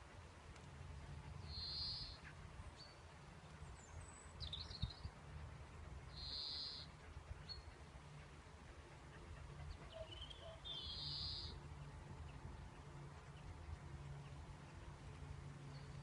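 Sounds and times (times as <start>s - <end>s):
low background rumble: 0.0s - 16.0s
small birds trilling: 1.4s - 3.0s, 6.0s - 7.8s, 9.0s - 14.9s.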